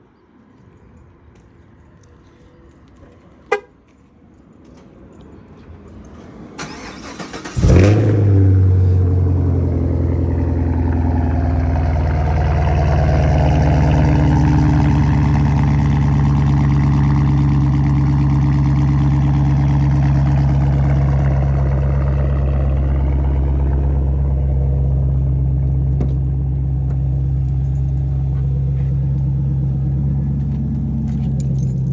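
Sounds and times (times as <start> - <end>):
car engine cranking: 6.6 - 31.9
car engine idling: 6.6 - 31.9.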